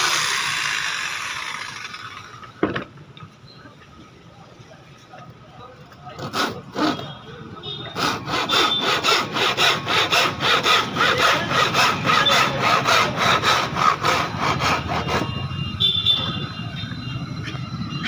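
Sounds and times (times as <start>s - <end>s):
saw cutting through wood: 0.0s - 2.3s, 6.2s - 7.2s, 7.9s - 15.6s.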